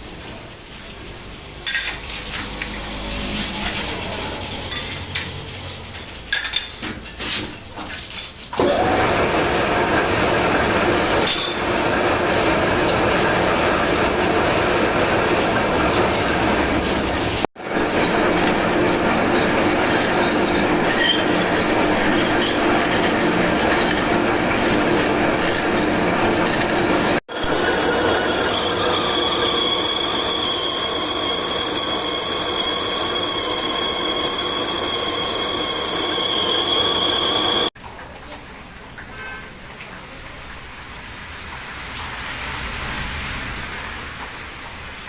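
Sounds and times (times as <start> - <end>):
metal scraping machinery: 1.6 - 6.2, 13.2 - 37.7
high metal squeal: 2.1 - 5.7, 17.9 - 24.5, 27.3 - 37.7.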